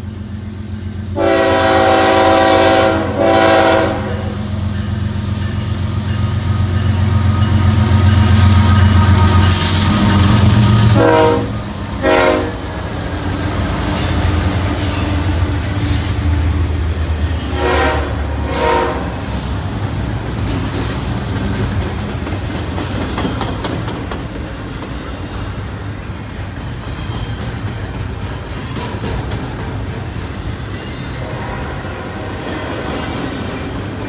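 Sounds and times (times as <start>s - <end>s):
diesel locomotive rumble: 0.0s - 34.0s
train horn blasts: 1.1s - 4.6s, 7.3s - 12.8s, 17.4s - 19.4s, 31.1s - 33.1s.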